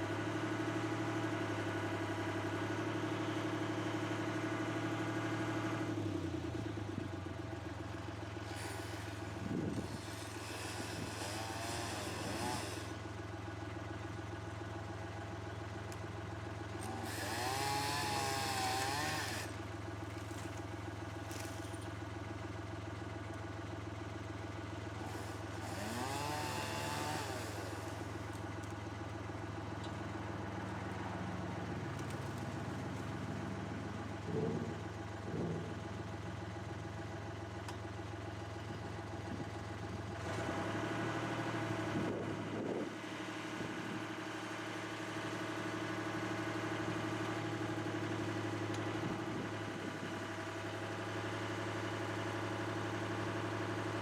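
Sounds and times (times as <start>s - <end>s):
engine running: 0.0s - 54.0s
chainsaw cutting: 7.9s - 13.3s, 16.7s - 22.0s, 25.0s - 28.8s, 31.9s - 33.3s, 42.8s - 52.0s.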